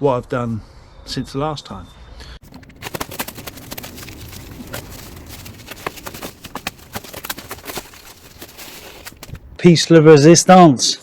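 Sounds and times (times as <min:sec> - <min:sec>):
footsteps clicking and knocking: 0:02.4 - 0:09.5.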